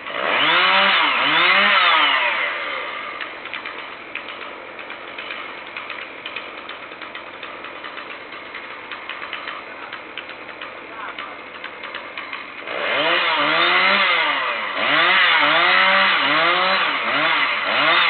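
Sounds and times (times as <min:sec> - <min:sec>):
chainsaw engine revving: 0:00.0 - 0:18.0
light ticking rattle: 0:03.2 - 0:12.7.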